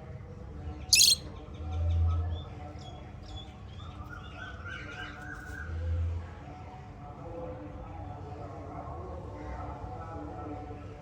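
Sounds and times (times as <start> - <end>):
parrots chirping: 0.9 - 1.2
loud sharp bird shriek: 1.0 - 1.2.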